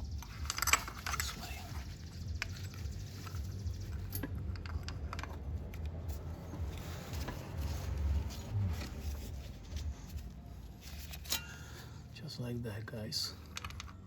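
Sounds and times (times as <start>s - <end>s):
metal parts clicking and tapping: 0.0s - 7.4s, 13.4s - 14.0s
low steady rumble: 0.0s - 14.0s.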